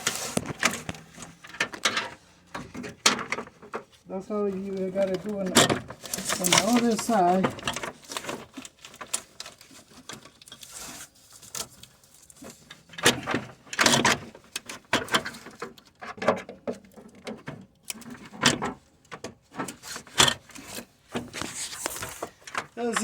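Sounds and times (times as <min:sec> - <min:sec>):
fan assembly knocking and clicking: 0:00.4 - 0:03.9.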